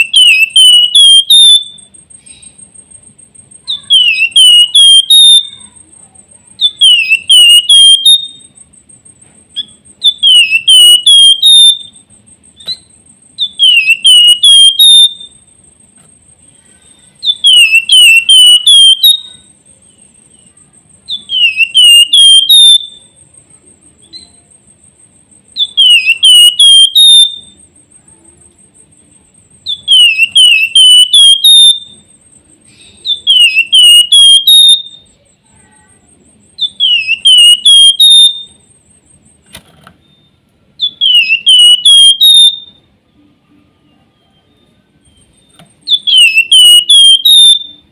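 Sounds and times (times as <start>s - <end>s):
bird whistling falling notes: 9.6s - 12.0s, 12.6s - 15.4s, 17.2s - 19.2s, 45.8s - 47.8s.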